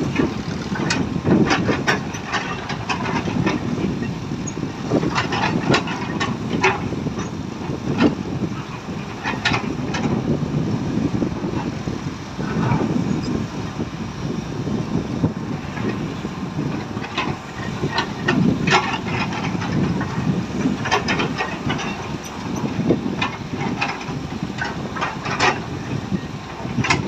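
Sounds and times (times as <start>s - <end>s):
irregular knocks and clatters: 0.0s - 10.2s, 15.6s - 27.0s
excavator diesel engine rumbling: 0.0s - 27.0s.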